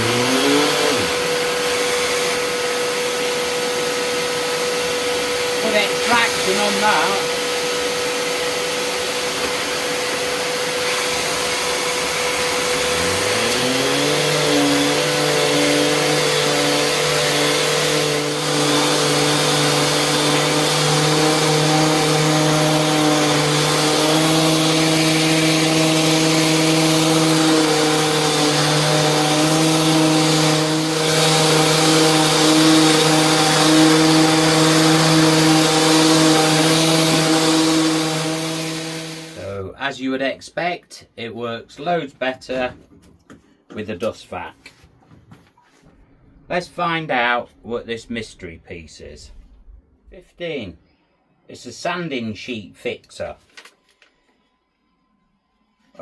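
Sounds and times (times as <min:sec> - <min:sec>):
orbital sander motor hum: 0:00.0 - 0:39.4
vacuum running: 0:00.0 - 0:39.6.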